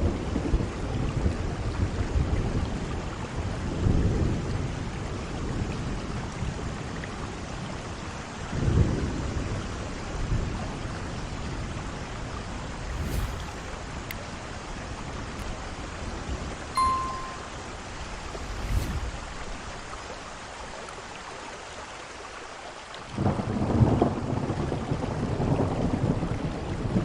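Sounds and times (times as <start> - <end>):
heavy rain falling: 0.2 - 16.4, 19.2 - 27.0.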